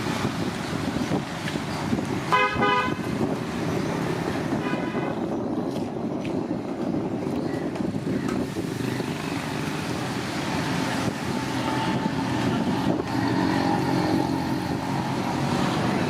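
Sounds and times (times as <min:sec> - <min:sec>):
traffic rumble: 0:00.0 - 0:16.0
vehicle horn honking: 0:02.3 - 0:03.1, 0:04.6 - 0:05.2.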